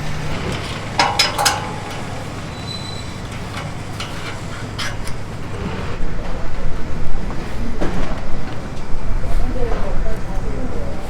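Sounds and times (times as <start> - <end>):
sharp metallic clanks: 0.0 - 6.1
low mechanical rumble: 0.0 - 11.0.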